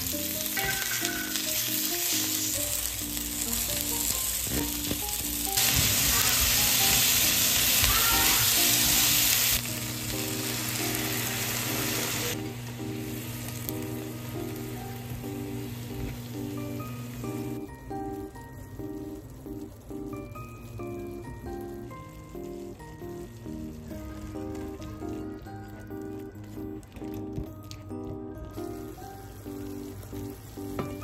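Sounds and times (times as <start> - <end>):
chicken and onion sizzling in pan: 0.0 - 19.6, 28.5 - 31.0.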